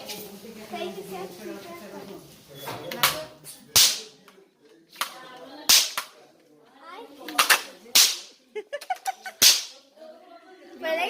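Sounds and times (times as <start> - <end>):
bang snaps cracking: 3.8 - 4.2, 5.0 - 6.2, 7.3 - 8.3.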